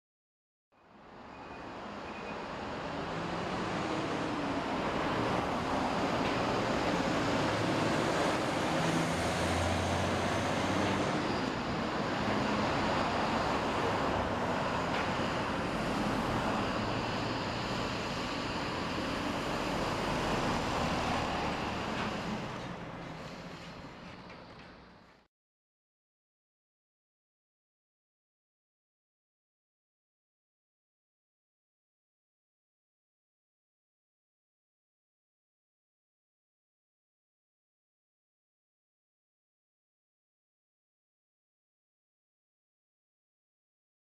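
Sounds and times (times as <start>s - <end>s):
passing vehicles: 1.0s - 24.9s.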